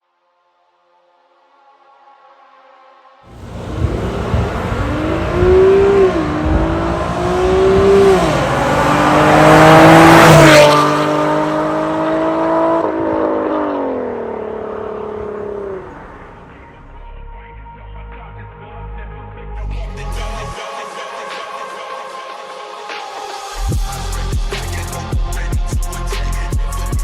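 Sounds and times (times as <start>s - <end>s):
car engine accelerating: 3.3s - 17.0s.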